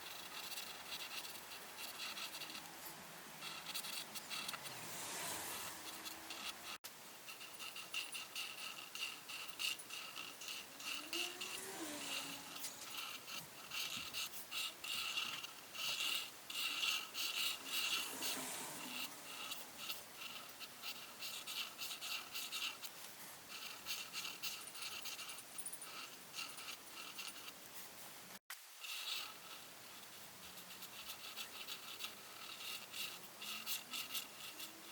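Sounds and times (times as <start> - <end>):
coloring tool scratching paper: 0.0 - 27.9, 28.8 - 34.9.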